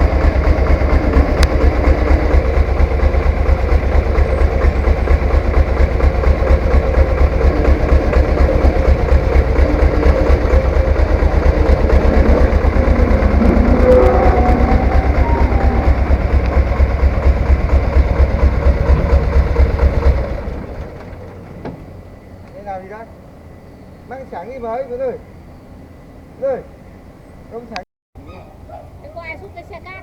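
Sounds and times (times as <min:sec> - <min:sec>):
diesel tractor engine running: 0:00.0 - 0:21.5.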